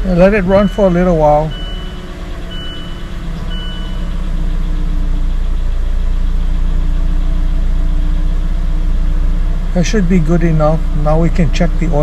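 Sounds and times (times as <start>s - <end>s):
car engine idling: 0.0s - 12.0s
short high beeps: 0.4s - 4.2s.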